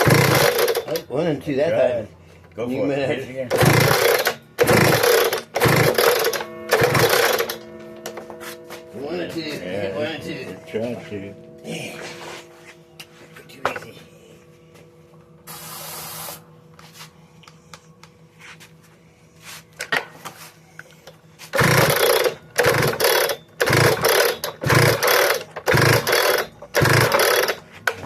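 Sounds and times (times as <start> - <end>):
engine cranking without catching: 0.0 - 1.1, 3.5 - 8.1, 21.0 - 28.0.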